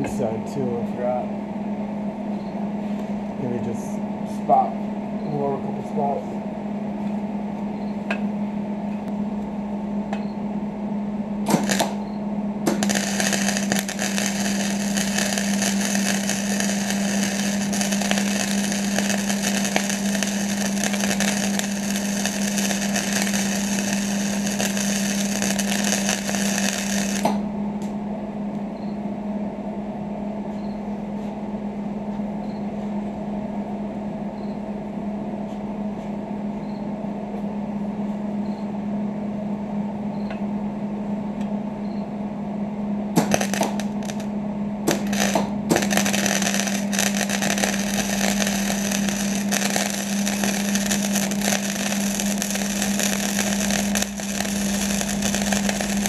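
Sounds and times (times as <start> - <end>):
steady low hum: 0.0 - 56.0
arc welding crackling sizzle: 11.5 - 12.1, 12.7 - 27.5, 43.2 - 56.0.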